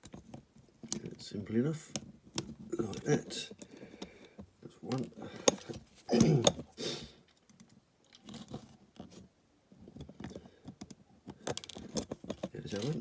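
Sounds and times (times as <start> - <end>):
tool clicking and scraping plastic: 1.8 - 6.7, 9.9 - 13.0.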